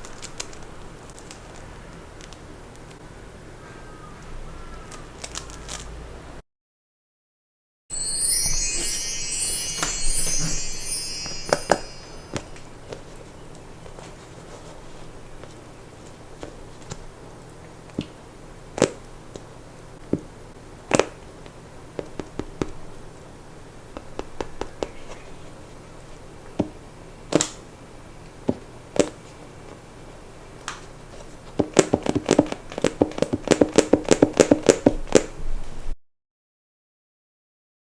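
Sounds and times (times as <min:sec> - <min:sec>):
plastic toys tapping and clicking: 0:31.6 - 0:35.3.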